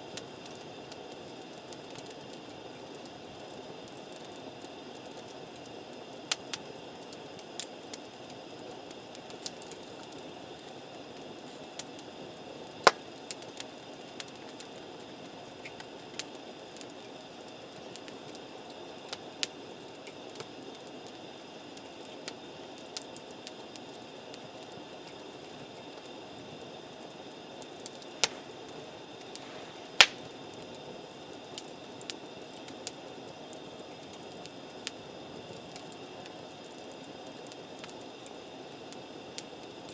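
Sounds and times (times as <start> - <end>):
campfire crackling and popping: 0.0 - 39.9
low fire hiss: 0.0 - 39.9
loud fire snaps: 9.0 - 12.1, 12.7 - 18.4, 19.0 - 20.9, 27.0 - 39.9.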